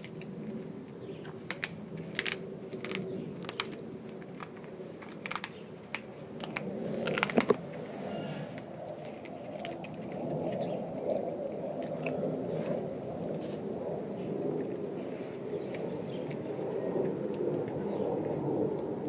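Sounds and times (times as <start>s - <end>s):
dog chewing meat and bone: 0.0s - 7.8s, 8.6s - 13.4s.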